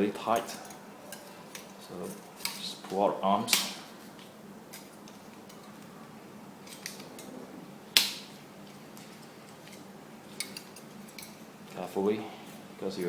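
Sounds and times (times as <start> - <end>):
sharp snap: 3.4 - 3.9, 8.0 - 8.4.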